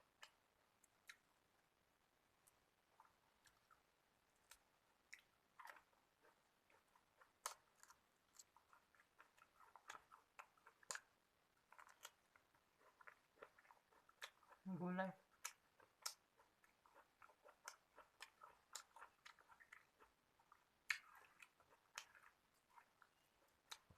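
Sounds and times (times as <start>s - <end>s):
person chewing food: 0.0s - 1.7s, 2.3s - 23.9s.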